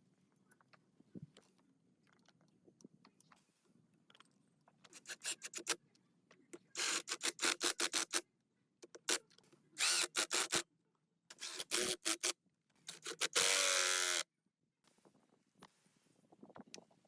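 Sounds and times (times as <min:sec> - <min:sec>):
power tool whine: 0:09.8 - 0:10.6, 0:12.9 - 0:14.2.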